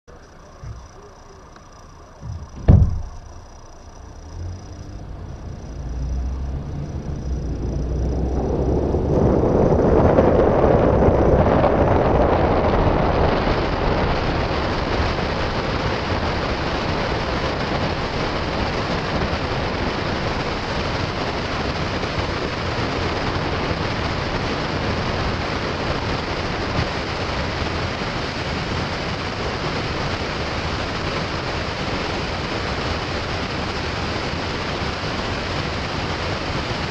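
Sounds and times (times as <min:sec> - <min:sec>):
sharp knock: 0:02.2 - 0:03.5.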